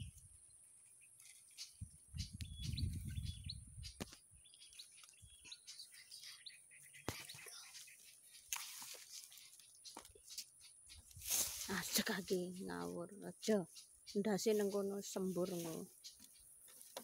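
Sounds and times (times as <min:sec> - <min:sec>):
high bird chirps: 0:00.9 - 0:08.5, 0:09.3 - 0:16.5
leaves rustling: 0:07.1 - 0:17.0.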